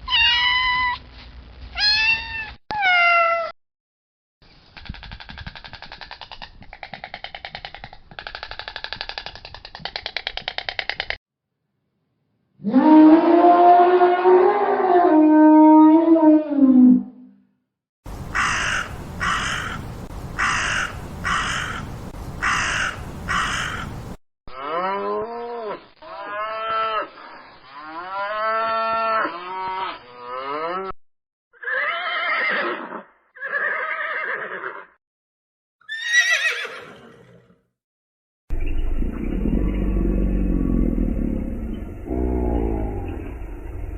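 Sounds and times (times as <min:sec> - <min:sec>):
low drawn-out animal call: 0:12.6 - 0:17.2, 0:38.5 - 0:43.9
raspy rhythmic animal calls: 0:18.1 - 0:24.2.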